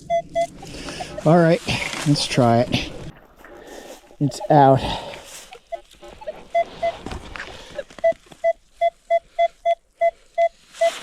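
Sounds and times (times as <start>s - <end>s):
metal detector short beeps: 8.0s - 11.0s.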